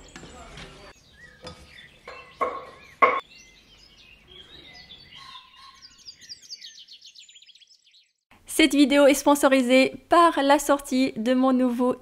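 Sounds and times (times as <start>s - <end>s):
birds chirping and trilling: 0.0s - 8.3s.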